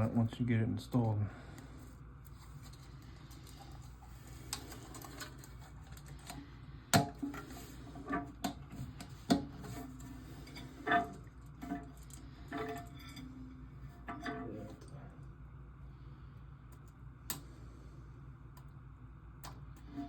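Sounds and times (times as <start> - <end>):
parts clicking in toilet tank: 4.5 - 13.3, 14.0 - 14.9.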